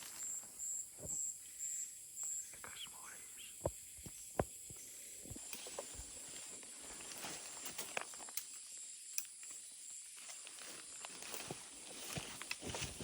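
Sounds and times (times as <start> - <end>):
insects droning: 0.0 - 13.0
footsteps on forest floor: 3.7 - 8.4, 10.1 - 13.0.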